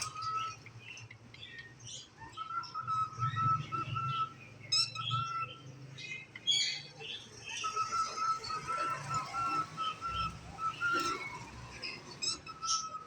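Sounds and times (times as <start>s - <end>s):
cockatiel chirping: 1.4s - 13.0s.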